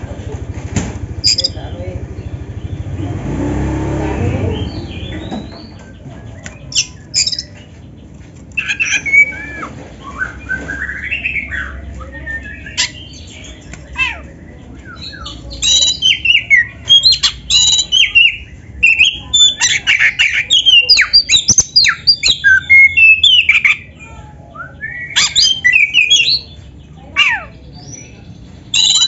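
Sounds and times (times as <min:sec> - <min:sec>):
songbird singing whistled phrases: 0:04.6 - 0:07.6, 0:08.6 - 0:26.6, 0:27.6 - 0:29.0.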